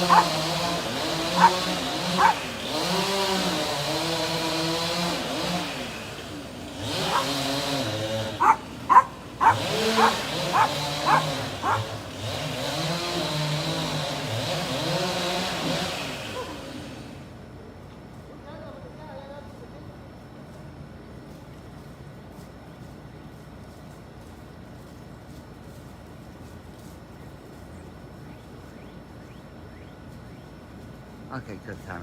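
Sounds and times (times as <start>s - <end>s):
dog barking: 0.0s - 0.4s, 1.3s - 2.5s, 7.0s - 7.4s, 8.4s - 12.0s
engine revving: 0.0s - 17.2s.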